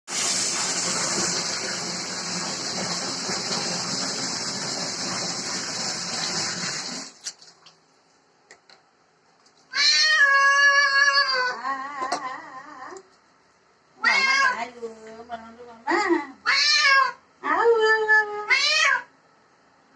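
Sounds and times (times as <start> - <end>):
running water: 0.1 - 8.2
cat meowing: 9.7 - 12.2, 14.0 - 14.6, 16.4 - 17.2, 17.8 - 19.1.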